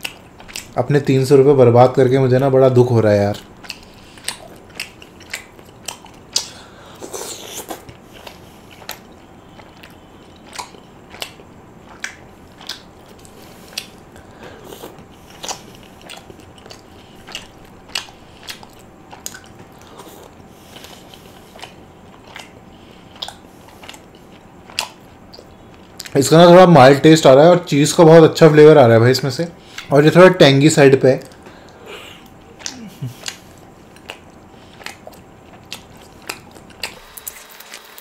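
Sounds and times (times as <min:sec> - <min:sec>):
chewing with mouth clicks: 0:00.0 - 0:01.2, 0:02.4 - 0:26.2, 0:29.6 - 0:30.0, 0:31.2 - 0:38.0.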